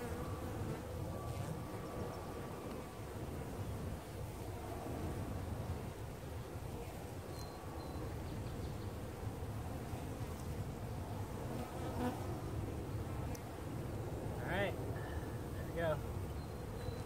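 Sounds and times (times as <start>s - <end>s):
honeybees buzzing: 0.0s - 4.5s, 9.7s - 12.5s.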